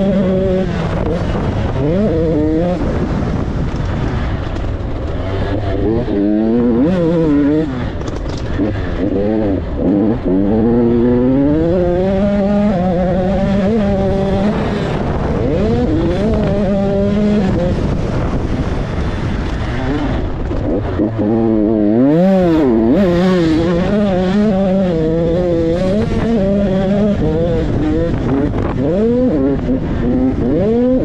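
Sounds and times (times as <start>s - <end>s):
motocross bike engine revving: 0.0s - 31.0s.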